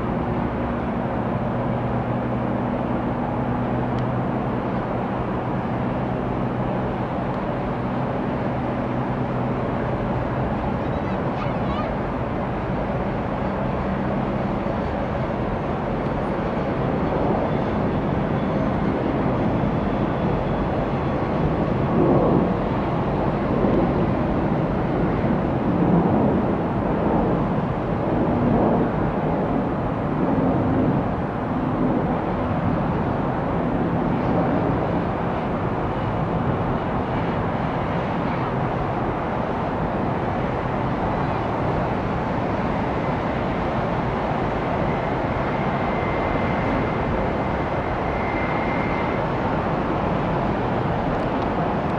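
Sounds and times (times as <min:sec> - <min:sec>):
jet engine rushing rumble: 0:20.8 - 0:51.9.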